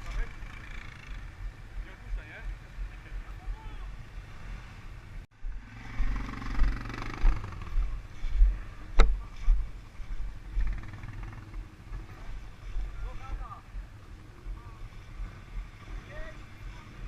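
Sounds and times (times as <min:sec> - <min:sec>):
quad bike engine revving: 0:00.0 - 0:01.9, 0:05.5 - 0:09.1, 0:10.4 - 0:12.3.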